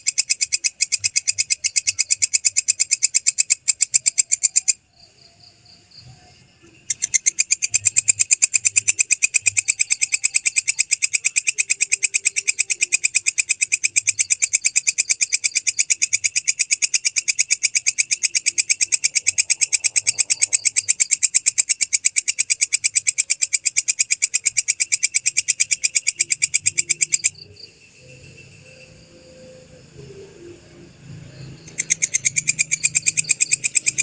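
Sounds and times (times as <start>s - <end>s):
katydid ticking call: 0.0s - 34.0s.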